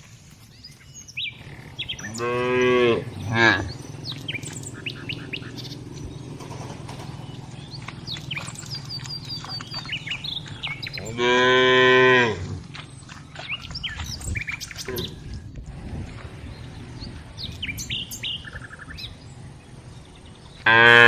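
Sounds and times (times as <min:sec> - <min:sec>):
birds chirping: 0:00.0 - 0:21.0
cow mooing: 0:01.4 - 0:05.7, 0:10.6 - 0:12.8, 0:20.6 - 0:21.0.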